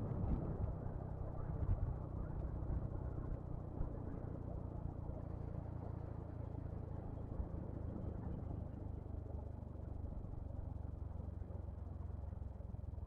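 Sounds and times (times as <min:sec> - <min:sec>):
wind noise while riding: 0:00.0 - 0:04.4.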